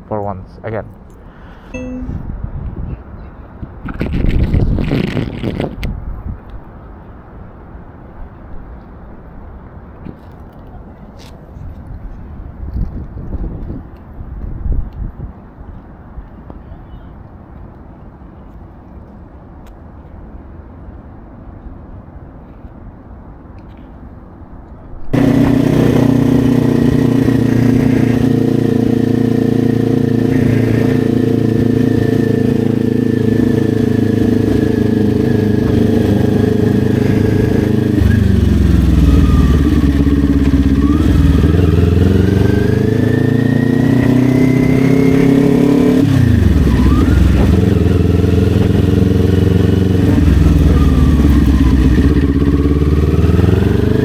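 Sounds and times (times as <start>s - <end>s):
motorcycle engine pulling away: 25.1s - 54.0s.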